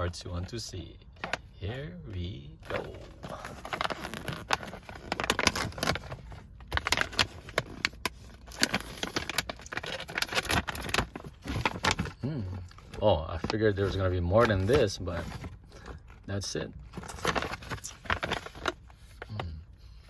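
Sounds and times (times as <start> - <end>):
snack wrapper crinkling: 2.7 - 13.7.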